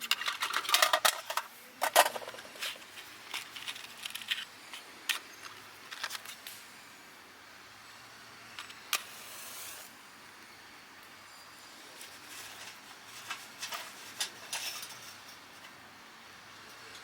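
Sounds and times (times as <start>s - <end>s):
brief hiss: 9.0s - 9.9s.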